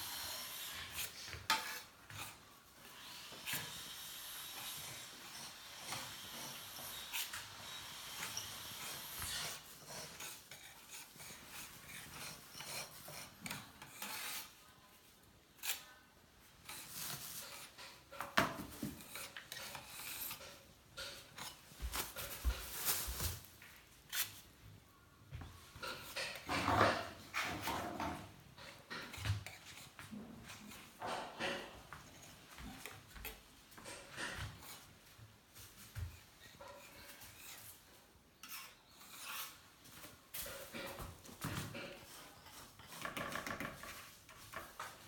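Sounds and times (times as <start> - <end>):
stone scraping and rasping: 0.1 - 14.6, 38.4 - 39.6.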